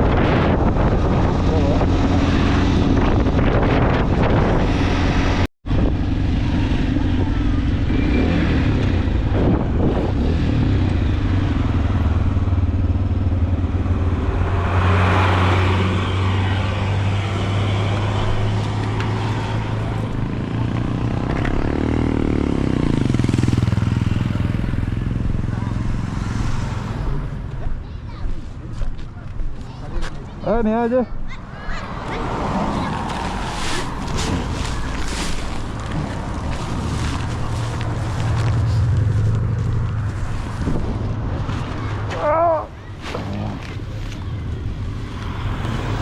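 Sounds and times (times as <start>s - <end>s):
motorcycle engine running: 5.3s - 14.5s, 19.5s - 27.3s, 34.1s - 42.0s.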